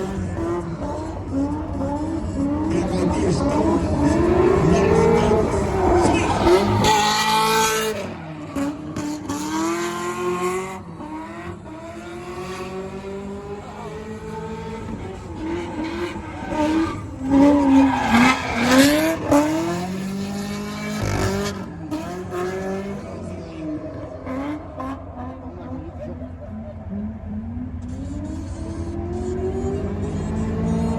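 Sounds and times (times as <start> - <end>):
car engines revving: 0.0 - 30.9
tire squeal: 2.8 - 9.7, 13.4 - 19.9.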